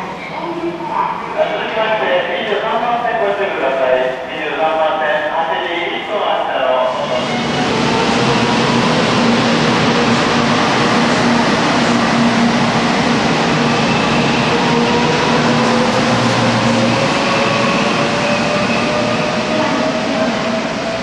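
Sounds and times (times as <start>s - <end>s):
train running noise: 0.0s - 21.0s.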